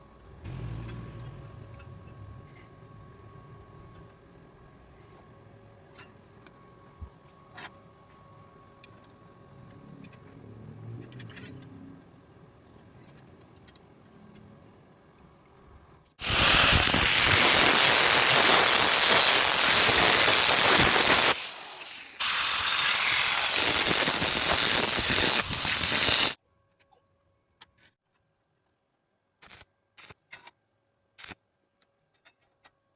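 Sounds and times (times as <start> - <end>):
welding arc crackling and hissing: 16.2 - 26.4, 29.4 - 30.2.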